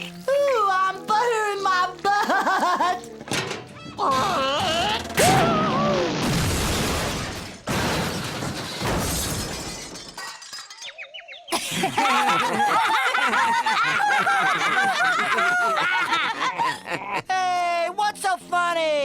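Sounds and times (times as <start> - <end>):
children laughing: 2.1 - 3.2, 11.5 - 17.3
cartoon crash with shattering: 4.1 - 10.8.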